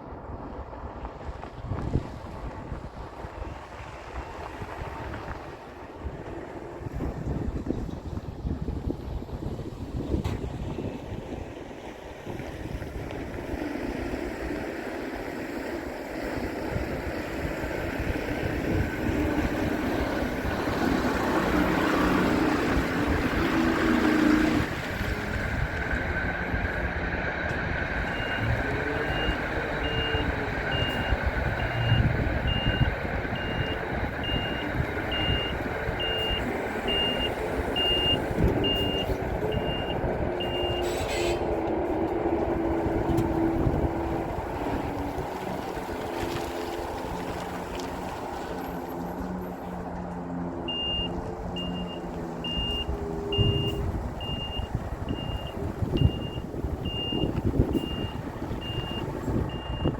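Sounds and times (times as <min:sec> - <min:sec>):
truck engine running: 0:12.7 - 0:59.9
reversing alarm beeping: 0:28.0 - 0:40.9, 0:50.7 - 0:59.9.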